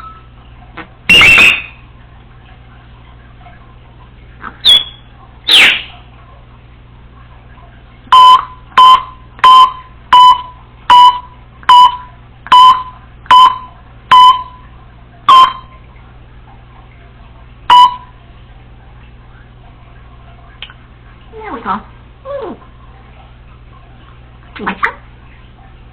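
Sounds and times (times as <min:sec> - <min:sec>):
parrot imitating beeps: 0:01.1 - 0:01.8, 0:04.6 - 0:05.9.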